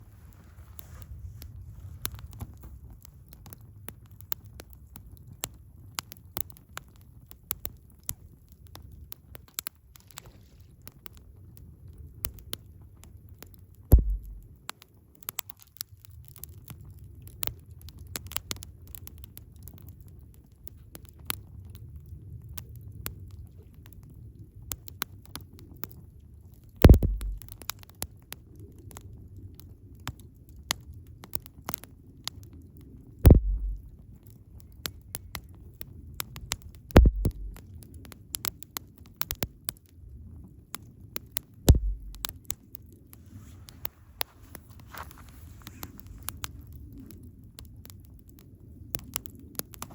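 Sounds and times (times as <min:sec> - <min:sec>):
campfire crackling: 0:00.0 - 0:49.9
loud pops with low thump: 0:13.9 - 0:14.5, 0:26.8 - 0:27.6, 0:33.3 - 0:33.9, 0:37.0 - 0:37.7, 0:41.7 - 0:42.5
low rumble: 0:13.9 - 0:14.5, 0:26.9 - 0:27.5, 0:33.3 - 0:33.9, 0:37.0 - 0:37.6, 0:41.7 - 0:42.3.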